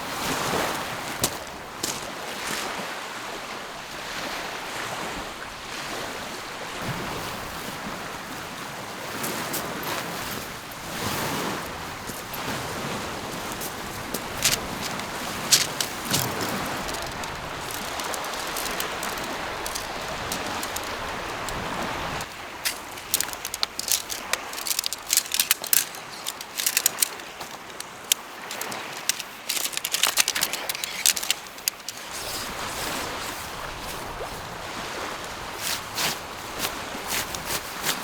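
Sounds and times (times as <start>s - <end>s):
sharp clicks and crunches: 13.3s - 32.8s.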